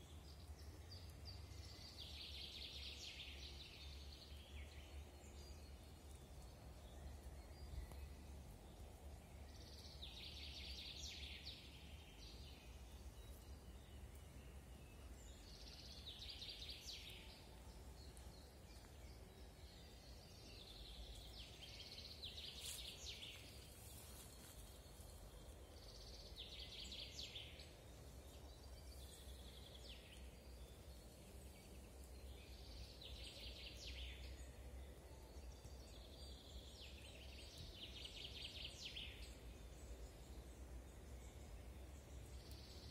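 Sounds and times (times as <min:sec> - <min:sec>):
low rumble of wind: 0:00.0 - 0:42.9
songbird singing: 0:00.0 - 0:42.9.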